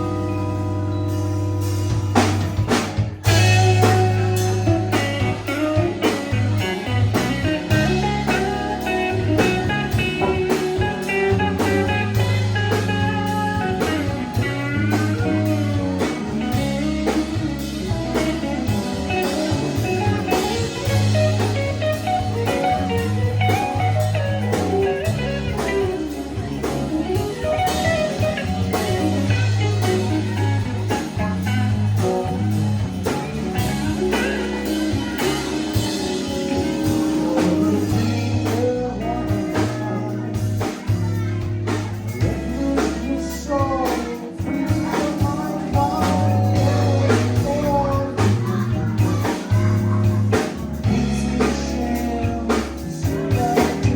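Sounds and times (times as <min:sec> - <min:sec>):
blues-rock band playing: 0:00.0 - 0:53.9
electric guitar lines: 0:00.0 - 0:53.9.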